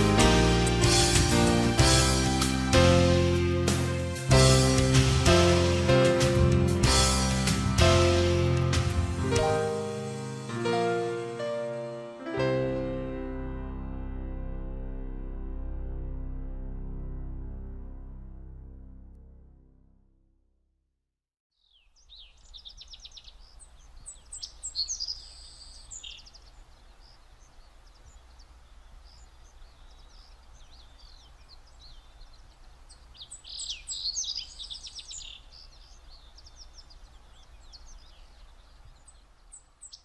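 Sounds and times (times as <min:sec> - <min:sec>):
low rumble: 0:13.3 - 0:20.4
birds singing and chirping: 0:21.6 - 0:40.0.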